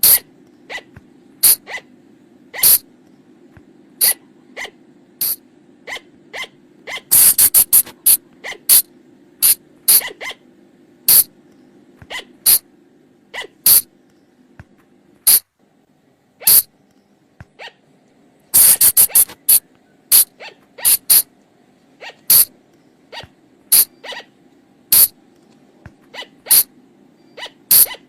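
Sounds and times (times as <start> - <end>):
animal shrill cries: 0.0 - 1.9, 2.5 - 2.8, 4.0 - 4.8, 5.9 - 8.8, 9.4 - 10.4, 12.1 - 12.6, 13.3 - 13.8, 16.4 - 16.7, 18.6 - 21.3, 22.0 - 22.5, 23.1 - 24.3, 26.1 - 26.7, 27.3 - 28.0
faint steady hum: 0.0 - 28.0.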